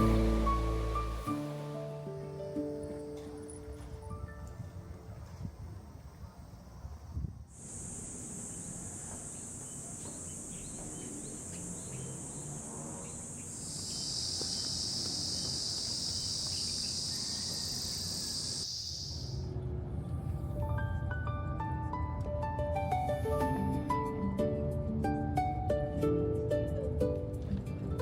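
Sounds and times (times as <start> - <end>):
insects buzzing: 6.0 - 19.5
lower-pitched insect drone: 7.5 - 19.5.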